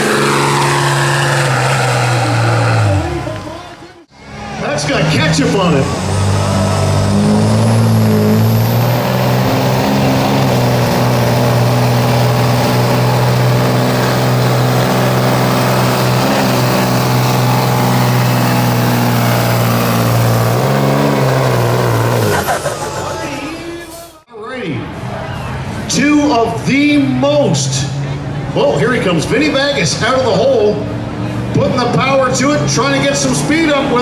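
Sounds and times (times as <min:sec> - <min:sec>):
pickup truck engine at high revs: 0:00.0 - 0:04.0, 0:04.8 - 0:24.2.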